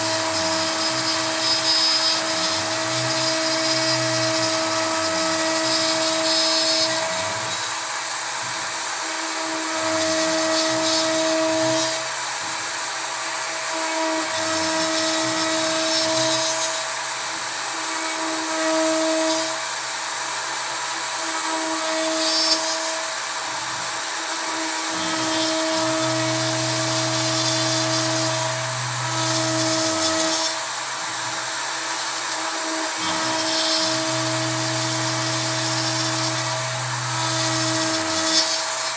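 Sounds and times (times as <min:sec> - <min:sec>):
router spindle whine: 0:00.0 - 0:38.9
low machine hum: 0:25.0 - 0:31.4, 0:32.6 - 0:38.9.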